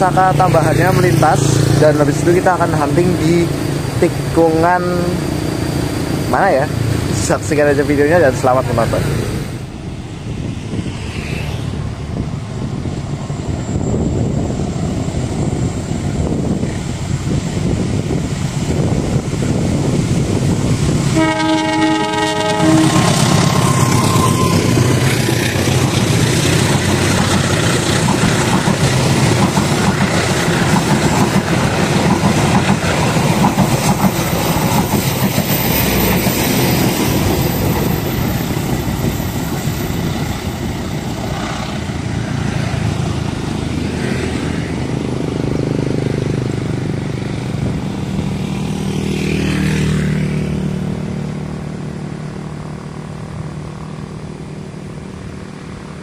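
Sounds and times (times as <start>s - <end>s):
wheels on rail: 0.0s - 56.0s
train horn blast: 21.1s - 24.0s.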